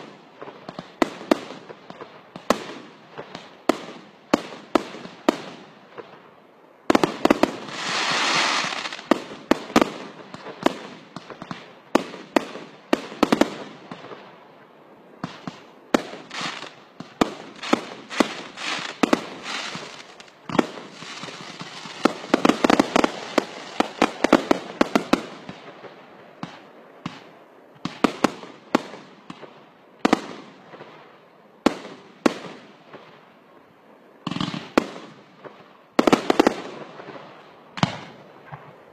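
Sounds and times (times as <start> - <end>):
hissing rush of firework: 6.9 - 12.3, 15.2 - 25.6
crackling firework bangs: 6.9 - 14.2, 15.2 - 31.0, 34.2 - 38.8
fireworks bursts and bangs: 6.9 - 14.4, 15.2 - 33.2, 34.2 - 38.8.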